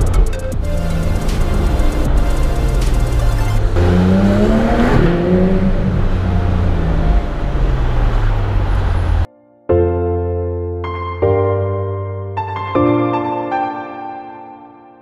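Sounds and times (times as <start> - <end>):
background music: 0.0 - 8.3, 9.3 - 15.0
car engine accelerating: 0.0 - 9.3.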